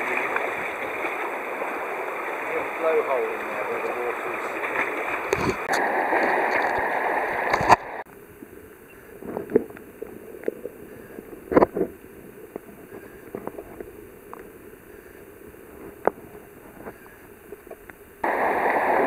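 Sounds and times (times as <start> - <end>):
water drips and small splashes: 0.0 - 8.0
water lapping: 0.0 - 19.0
water rushing along a kayak: 0.0 - 19.0.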